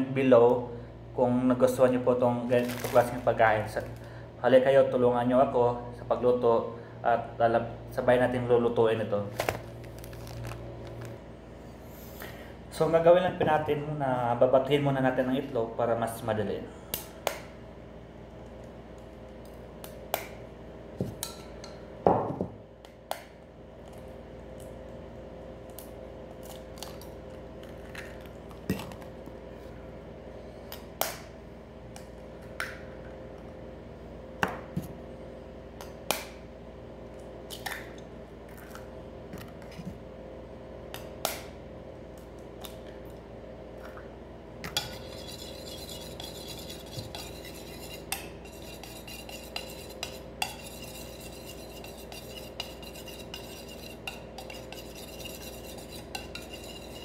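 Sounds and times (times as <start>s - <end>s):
spoon beating eggs in bowl: 44.7s - 57.0s.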